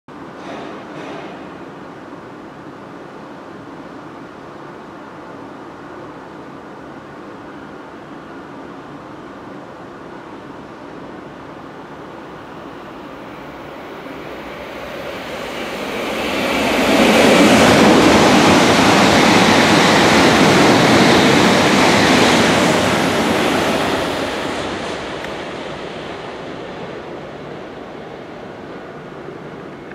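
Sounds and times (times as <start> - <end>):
high-speed train rushing past: 0.2 - 29.9.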